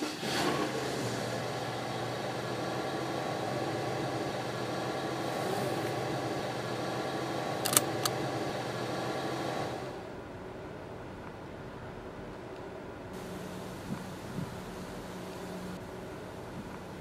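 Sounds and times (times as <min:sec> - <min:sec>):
car engine idling: 0:00.8 - 0:09.9
sharp clicks: 0:07.6 - 0:08.2.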